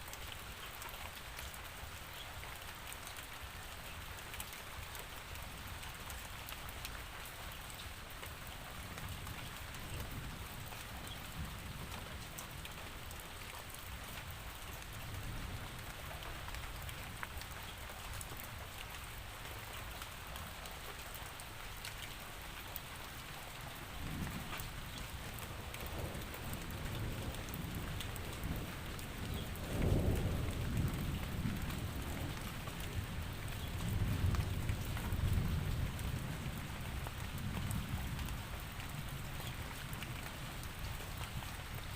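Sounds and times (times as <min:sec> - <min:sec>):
steady rain falling: 0:00.0 - 0:41.9
low rumbles of thunder: 0:23.8 - 0:41.9.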